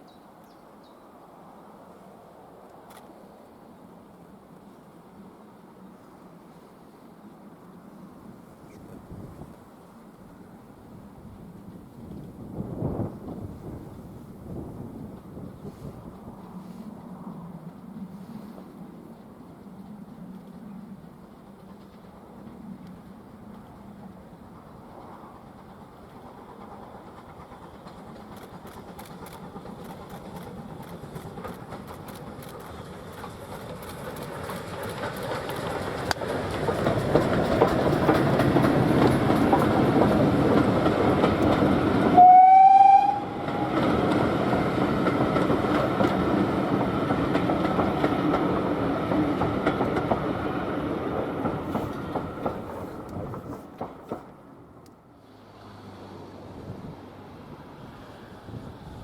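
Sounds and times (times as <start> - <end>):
train passing: 0.0 - 59.0
steam locomotive whistle: 42.1 - 43.8.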